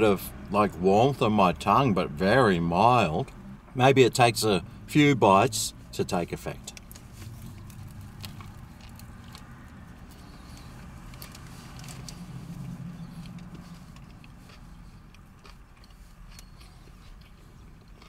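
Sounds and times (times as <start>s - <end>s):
person chewing sandwich: 6.8s - 18.0s.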